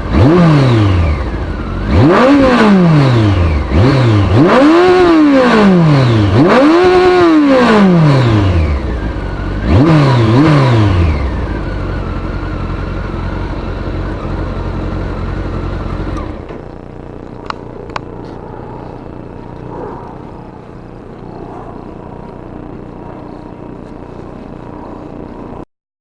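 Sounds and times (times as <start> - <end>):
motorcycle engine revving and idling: 0.0 - 25.6
sharp clicks: 17.4 - 18.4.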